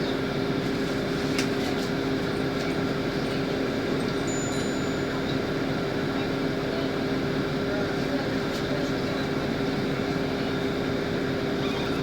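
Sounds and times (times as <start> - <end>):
bus engine hum: 0.0 - 4.2, 5.1 - 12.0.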